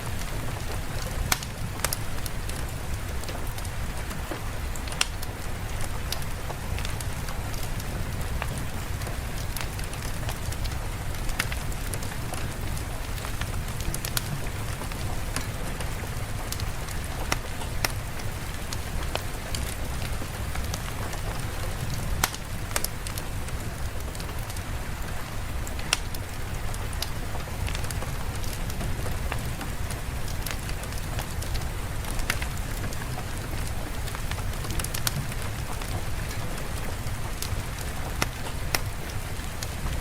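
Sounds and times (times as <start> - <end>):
steady rain hiss: 0.0 - 40.0
sharp ticks and pops: 0.7 - 2.7, 4.3 - 5.3, 25.8 - 26.2.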